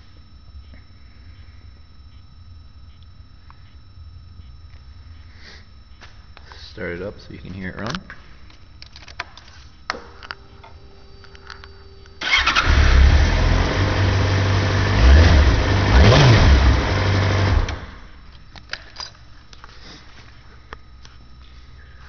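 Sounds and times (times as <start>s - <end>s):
faint steady hum: 0.0s - 22.0s
motorcycle engine revving: 12.2s - 18.1s.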